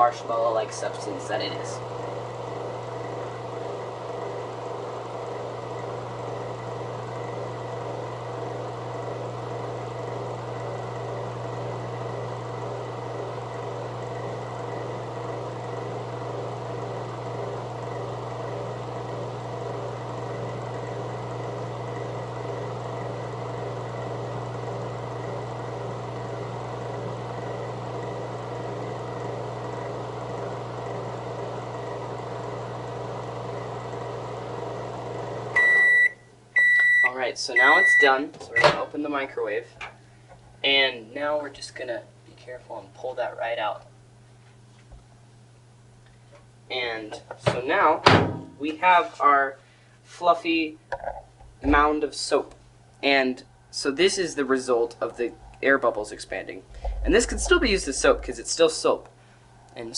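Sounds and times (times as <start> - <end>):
microwave oven humming: 0.0 - 59.9.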